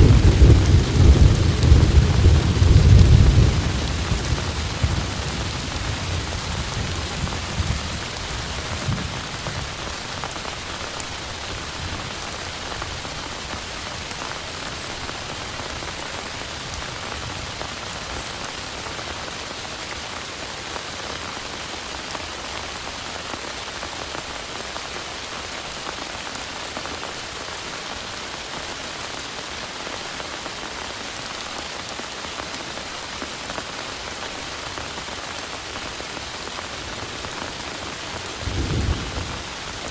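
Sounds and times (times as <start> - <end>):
low thunder rumble: 0.0 - 9.8, 37.4 - 39.9
heavy rain: 0.0 - 39.9.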